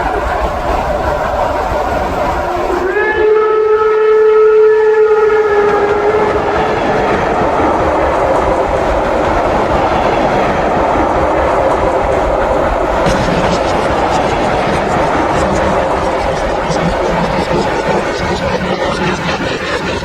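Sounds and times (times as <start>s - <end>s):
model train running and rail clatter: 0.0s - 20.0s
model locomotive steam whistle: 2.7s - 6.6s.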